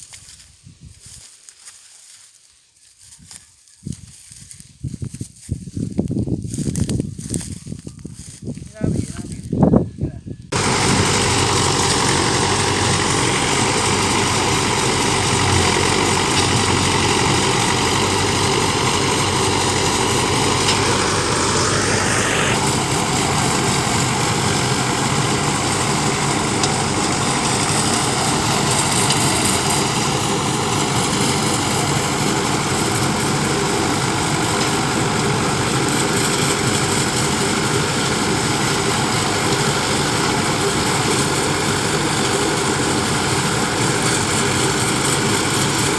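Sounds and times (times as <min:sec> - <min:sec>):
combine harvester running: 0:10.4 - 0:45.9
rising machine whine: 0:10.5 - 0:44.6.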